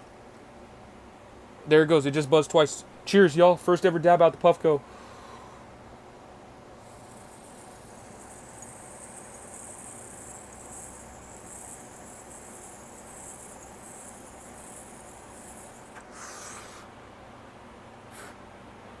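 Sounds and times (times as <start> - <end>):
breathy exhale: 4.9 - 5.7, 16.0 - 16.9, 18.1 - 18.4.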